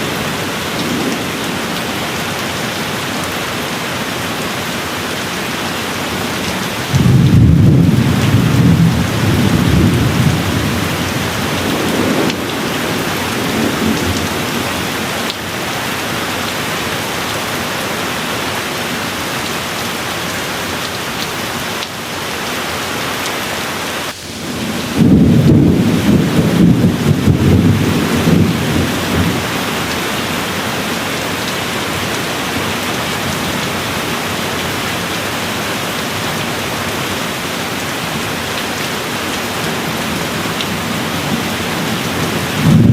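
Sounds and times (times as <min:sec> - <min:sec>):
thunder rumbling: 0:00.0 - 0:03.0, 0:06.7 - 0:15.6, 0:24.0 - 0:33.3, 0:40.4 - 0:42.9
steady rain falling: 0:00.0 - 0:42.9.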